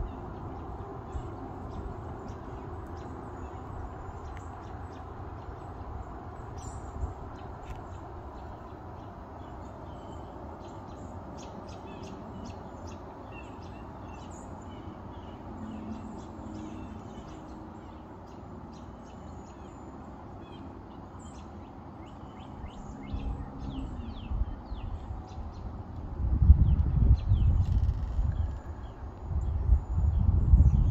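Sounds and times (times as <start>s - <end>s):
outdoor background hiss: 0.0s - 30.6s
low rumble on microphone: 22.8s - 30.9s.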